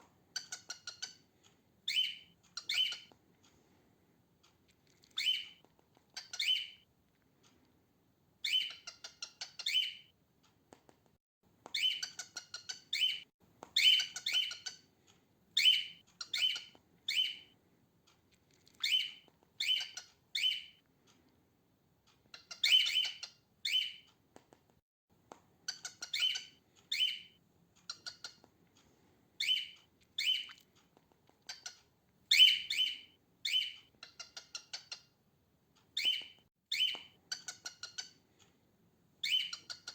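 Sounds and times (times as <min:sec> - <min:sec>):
cockatiel harsh chirps: 0:00.4 - 0:01.3, 0:01.9 - 0:03.1, 0:05.2 - 0:06.8, 0:08.4 - 0:10.1, 0:11.8 - 0:13.2, 0:13.8 - 0:14.9, 0:15.6 - 0:17.5, 0:18.8 - 0:20.8, 0:22.3 - 0:24.1, 0:25.7 - 0:28.4, 0:29.4 - 0:30.6, 0:31.4 - 0:35.2, 0:39.2 - 0:39.9.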